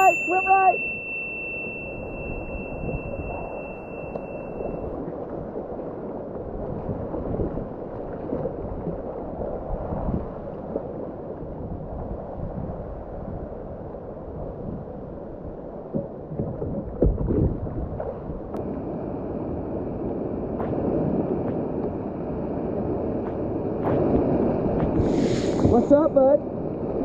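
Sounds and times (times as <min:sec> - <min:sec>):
thin high tone: 0:00.0 - 0:05.0.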